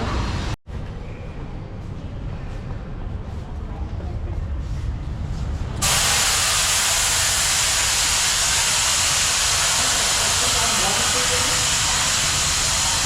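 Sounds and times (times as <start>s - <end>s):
low workshop rumble: 0.0s - 13.0s
loud steady hiss: 5.8s - 13.0s.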